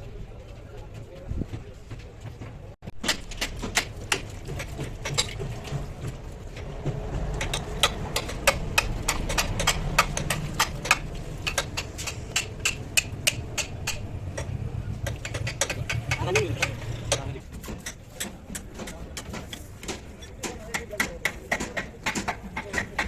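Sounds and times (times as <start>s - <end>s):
metal taps and clicks of tools: 3.0s - 5.8s, 7.4s - 23.0s
steady low rumble: 4.9s - 17.1s.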